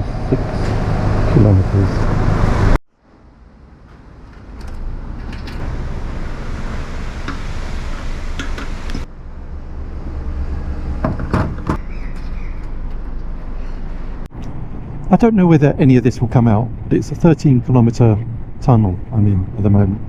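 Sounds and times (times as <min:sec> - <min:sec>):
wind and road noise: 0:00.0 - 0:20.0
knocks: 0:11.0 - 0:11.8.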